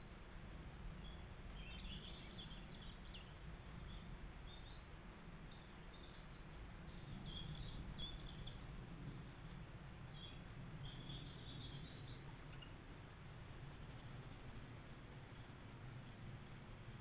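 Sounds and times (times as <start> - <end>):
low background rumble: 0.0 - 17.0
faint high bird chirps: 1.0 - 4.9, 5.5 - 8.7, 10.1 - 12.8.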